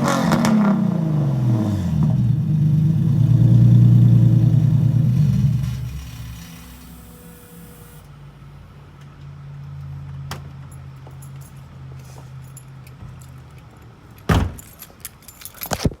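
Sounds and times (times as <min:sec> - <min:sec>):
car engine idling: 0:01.0 - 0:08.4.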